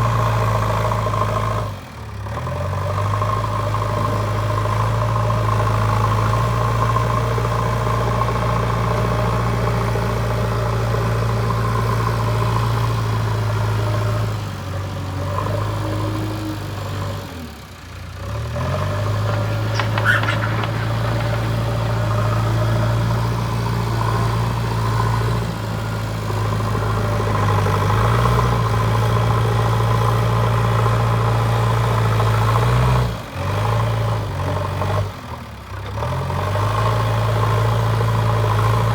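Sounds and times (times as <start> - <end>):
diesel engine running: 0.0 - 32.5
short high squeak: 19.2 - 22.4.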